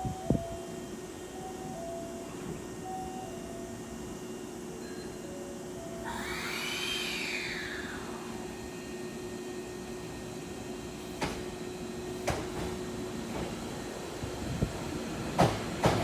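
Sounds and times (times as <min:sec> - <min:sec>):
electric train drone and hum: 0:00.0 - 0:16.0
high whine rising in pitch: 0:06.0 - 0:08.9.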